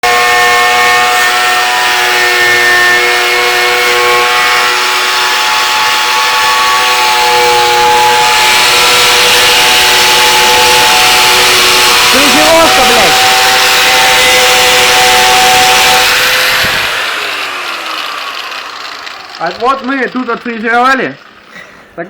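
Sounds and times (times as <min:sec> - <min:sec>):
power tool cutting steel: 0:00.0 - 0:22.0.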